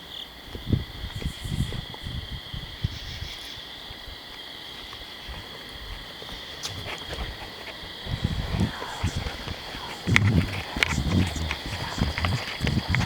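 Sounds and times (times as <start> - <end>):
night insects trilling: 0.0 - 13.0
rustling: 6.5 - 13.0.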